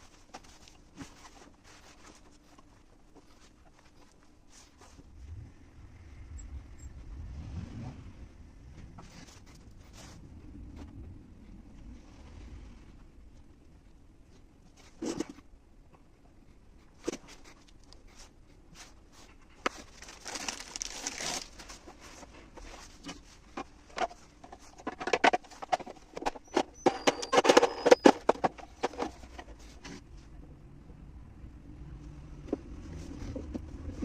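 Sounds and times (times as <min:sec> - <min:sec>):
irregular clicks and knocks: 0:22.6 - 0:30.0.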